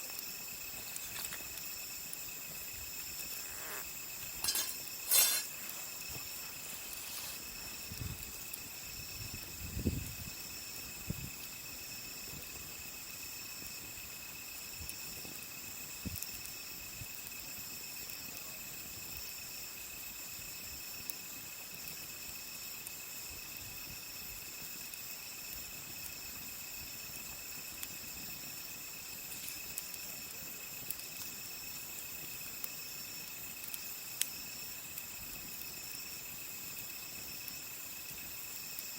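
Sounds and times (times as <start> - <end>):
firewood popping and knocking: 0.0 - 3.4, 4.1 - 8.6
crickets chirping: 0.0 - 38.9.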